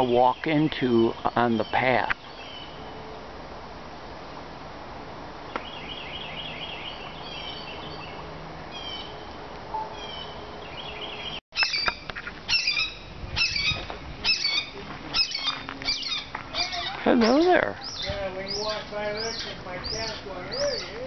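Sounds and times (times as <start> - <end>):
birds chirping: 0.0 - 3.4, 5.4 - 21.0
steady outdoor hiss: 0.0 - 21.0
sharp bird calls: 5.5 - 21.0.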